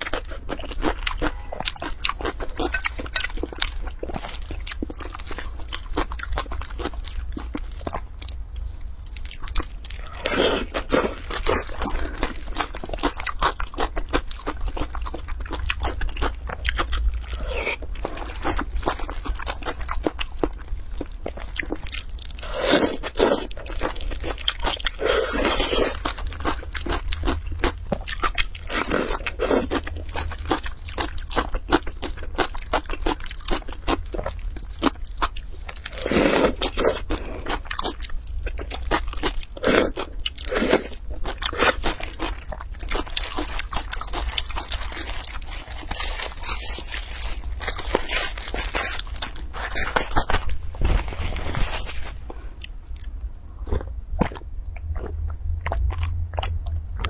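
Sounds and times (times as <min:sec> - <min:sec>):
crunchy chewing and biting: 0:00.0 - 0:57.0
low steady hum: 0:00.0 - 0:57.0
plastic crinkling: 0:43.1 - 0:52.5.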